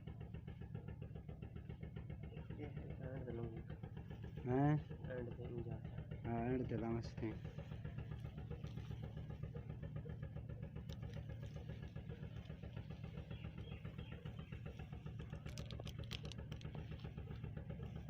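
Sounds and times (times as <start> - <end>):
engine idling: 0.0 - 18.0
light clicks: 10.8 - 17.7.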